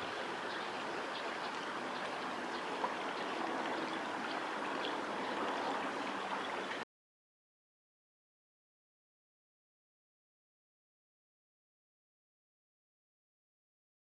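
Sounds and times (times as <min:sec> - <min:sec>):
river water rushing: 0:00.0 - 0:06.8.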